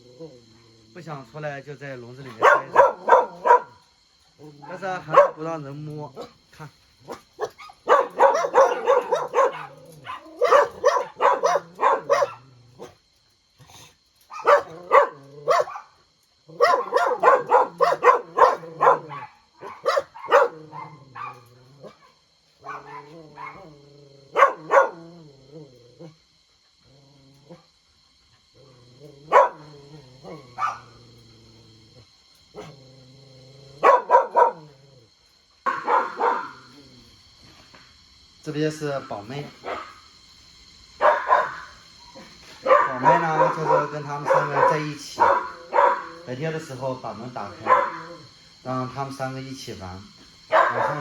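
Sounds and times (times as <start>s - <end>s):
dogs barking: 2.2s - 3.9s, 4.5s - 5.6s, 7.0s - 13.0s, 14.3s - 25.1s, 29.3s - 31.0s, 33.8s - 34.8s, 35.6s - 36.8s, 39.0s - 40.1s, 41.0s - 48.9s, 50.4s - 51.0s.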